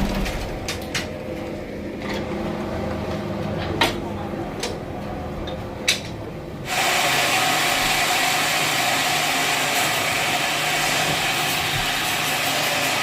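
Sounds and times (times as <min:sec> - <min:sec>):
bandsaw cutting log: 0:06.7 - 0:13.0.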